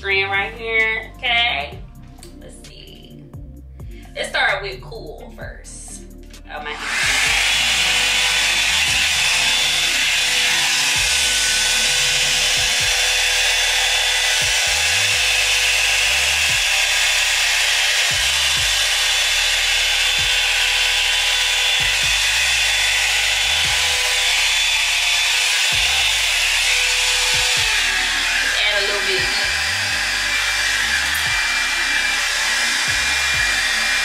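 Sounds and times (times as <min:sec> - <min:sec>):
background music with bass: 0:00.0 - 0:34.0
blow-dryer brush running: 0:06.5 - 0:34.0.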